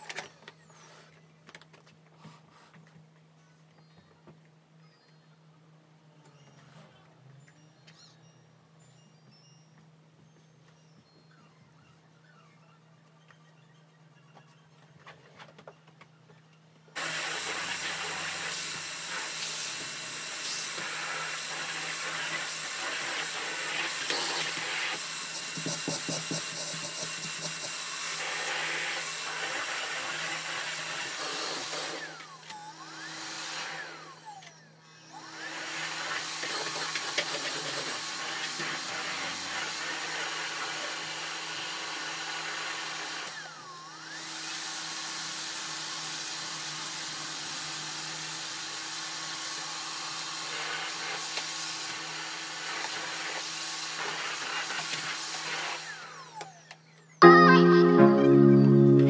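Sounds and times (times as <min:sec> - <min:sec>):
vacuum cleaner running: 0:17.0 - 0:56.8.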